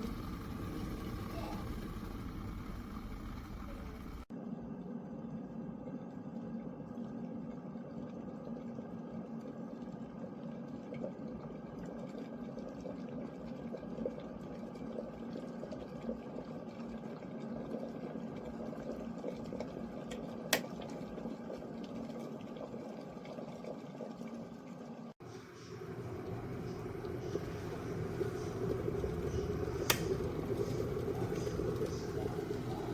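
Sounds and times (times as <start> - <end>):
kettle hum: 0.0 - 4.3, 7.9 - 32.9
kettle water bubbling: 0.0 - 4.3, 6.2 - 32.9
kettle click: 20.1 - 20.8, 28.4 - 32.8.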